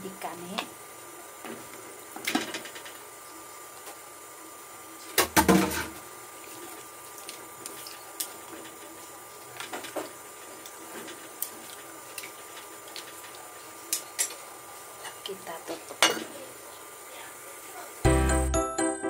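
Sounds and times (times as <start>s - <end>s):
small wet liquid sounds: 6.4s - 9.6s.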